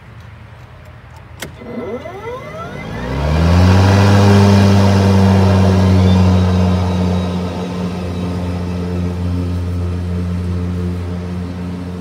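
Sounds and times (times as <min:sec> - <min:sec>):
lawnmower switch click: 0:01.2 - 0:03.1
electric lawnmower motor whine: 0:01.4 - 0:12.0.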